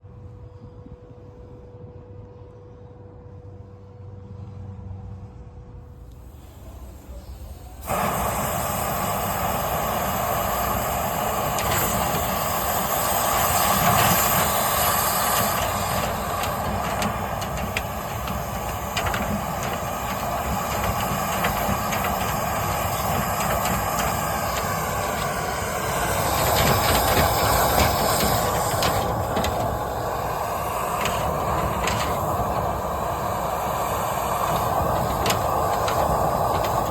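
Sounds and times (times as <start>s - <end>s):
dryer vent cleaner rushing hiss: 6.2s - 36.9s.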